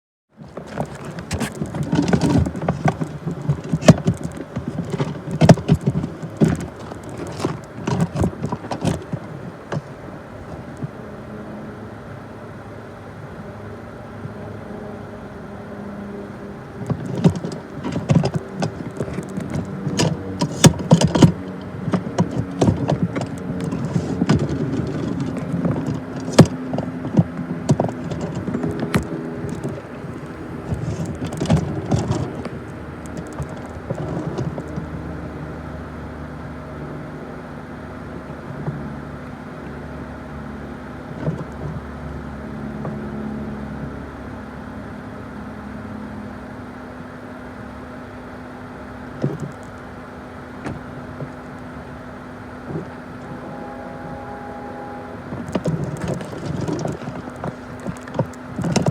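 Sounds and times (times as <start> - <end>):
locomotive engine drone: 0.3 - 58.9.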